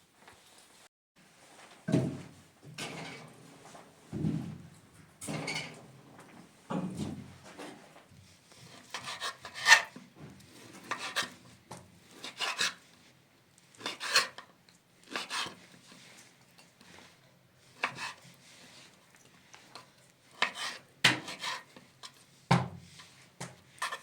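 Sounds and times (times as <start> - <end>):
rasping scraping strokes: 20.4 - 21.7.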